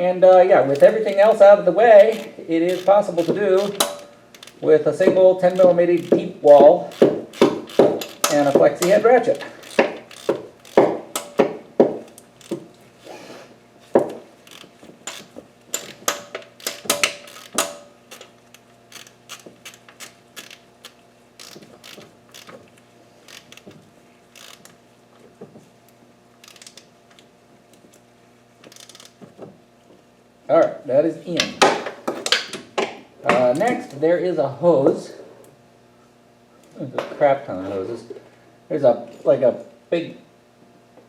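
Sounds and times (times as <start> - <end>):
ratchet clicking: 0.6 - 13.1, 13.8 - 24.8, 26.4 - 26.9, 28.6 - 29.2.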